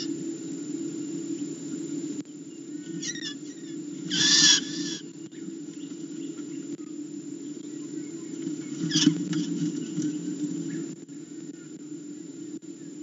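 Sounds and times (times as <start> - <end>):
bird screaming in distress: 3.0 - 5.1.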